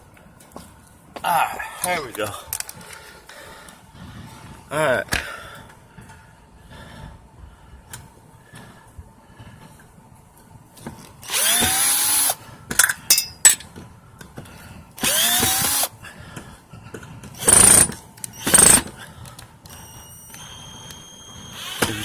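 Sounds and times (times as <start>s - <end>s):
power screwdriver whirring: 11.2s - 12.4s, 15.0s - 15.9s, 17.4s - 18.9s, 20.3s - 22.0s.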